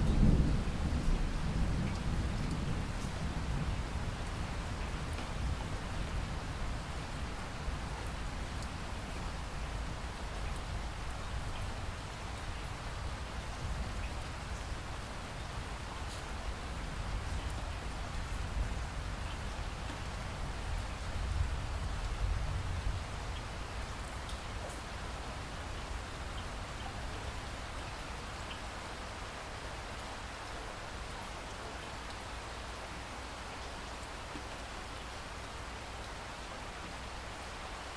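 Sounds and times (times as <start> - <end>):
steady rain falling: 0.0 - 37.9.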